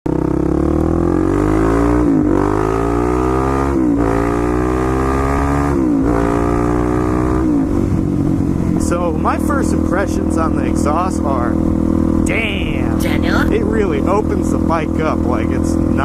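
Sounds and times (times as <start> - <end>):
motorcycle engine accelerating: 0.1 - 16.0.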